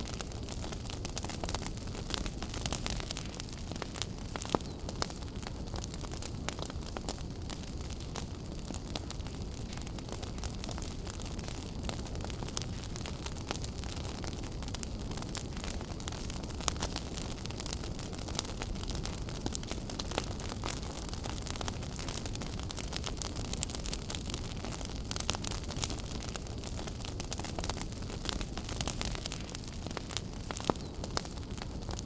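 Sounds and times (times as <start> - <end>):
fire crackling and popping: 0.0 - 32.0
low rumble of flames: 0.0 - 32.0.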